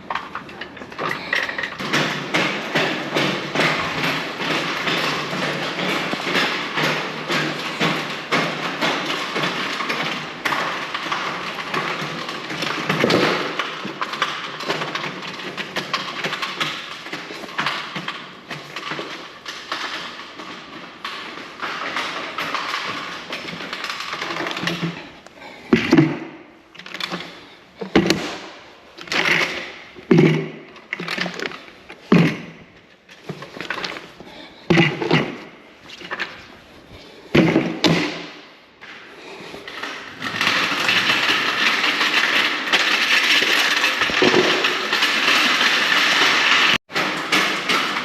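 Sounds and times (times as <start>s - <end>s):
paint containers rattling: 0.0s - 48.0s
heavy thumps: 21.2s - 38.5s.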